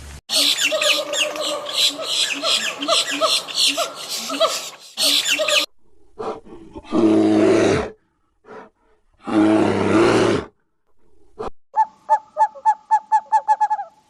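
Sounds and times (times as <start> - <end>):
high animal chattering: 0.3 - 5.7
big cat roaring: 6.0 - 8.6, 9.2 - 10.5.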